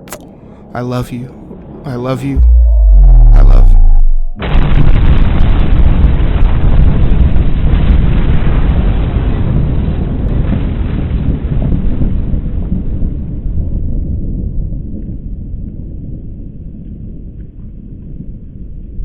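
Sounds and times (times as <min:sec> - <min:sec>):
explosion blast with rumble: 0:02.4 - 0:16.6.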